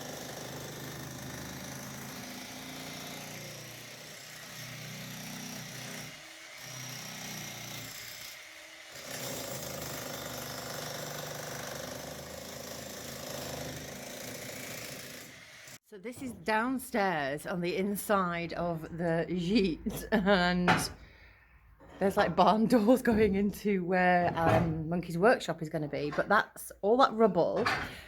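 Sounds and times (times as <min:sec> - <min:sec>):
jackhammer running: 0:00.0 - 0:15.8.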